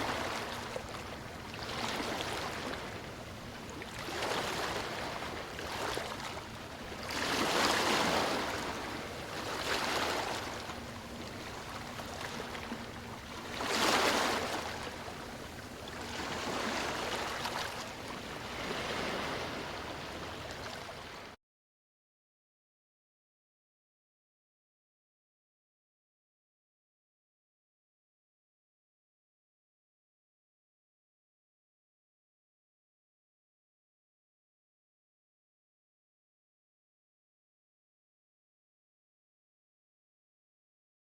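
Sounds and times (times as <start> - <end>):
small waves washing onto beach: 0.0 - 21.4.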